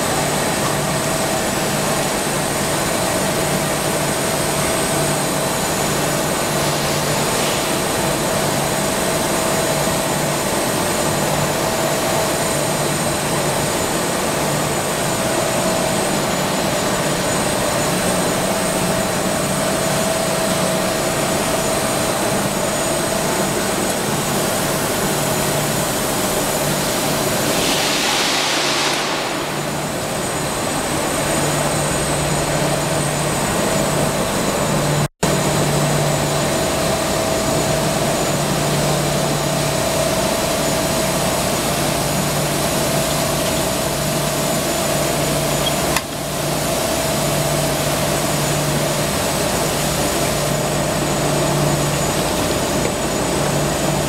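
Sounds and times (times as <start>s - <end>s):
industrial machine humming and whining: 0.0s - 54.0s
brief hiss: 26.6s - 31.3s.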